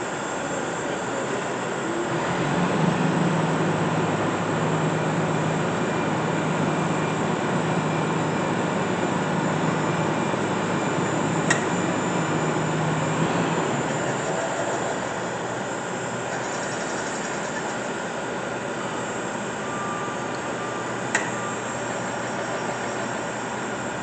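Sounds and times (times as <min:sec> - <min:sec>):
milling machine humming: 0:00.0 - 0:24.0
sharp click: 0:11.5 - 0:11.7, 0:21.1 - 0:21.4.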